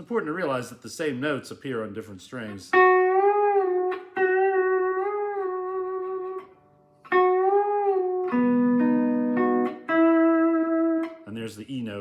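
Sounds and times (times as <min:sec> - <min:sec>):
lap steel guitar notes: 0:02.7 - 0:11.3.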